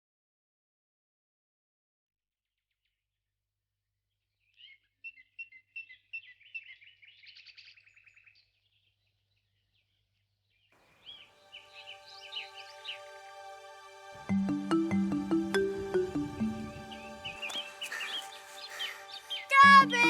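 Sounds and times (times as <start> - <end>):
songbird chirping and trilling: 4.2 - 20.0
soft music with held tones: 11.0 - 20.0.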